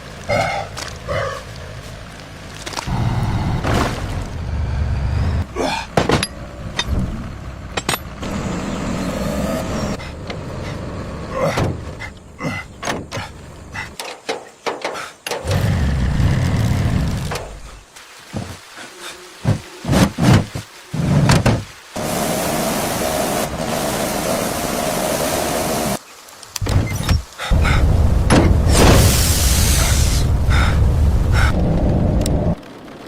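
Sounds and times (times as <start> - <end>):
heavy vehicle engine rumble: 1.5 - 14.0, 26.6 - 33.0
knocks and clunks: 5.8 - 8.2, 11.5 - 15.7, 19.4 - 21.7, 26.6 - 29.1.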